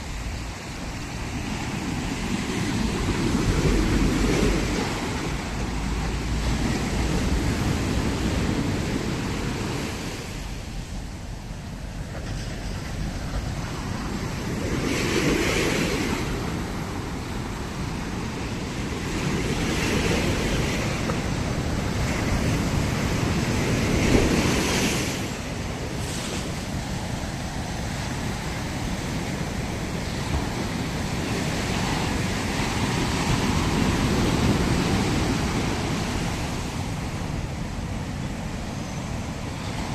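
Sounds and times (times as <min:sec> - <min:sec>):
ocean waves washing up beach: 0:00.0 - 0:39.9
wind on microphone: 0:00.0 - 0:39.9.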